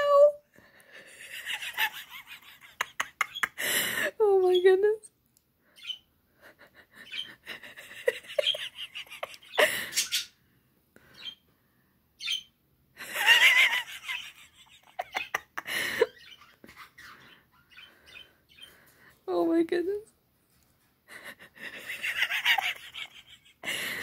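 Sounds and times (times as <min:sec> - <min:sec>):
birds chirping and singing: 0:05.7 - 0:06.1, 0:06.9 - 0:07.6, 0:08.3 - 0:10.4, 0:12.2 - 0:12.6, 0:16.1 - 0:19.2.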